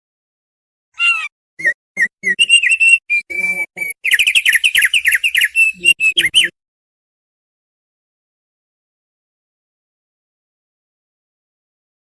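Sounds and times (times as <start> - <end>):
bird singing whistled notes: 1.0 - 6.5.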